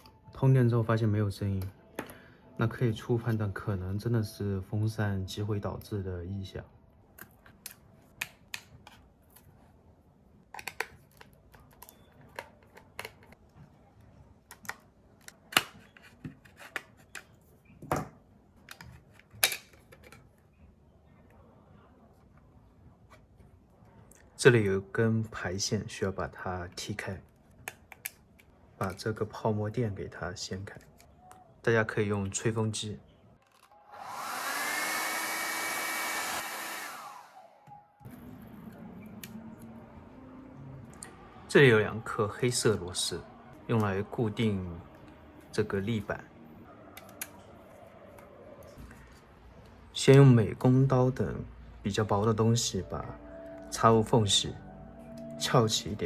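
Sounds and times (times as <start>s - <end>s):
hair dryer blowing: 33.7s - 37.8s.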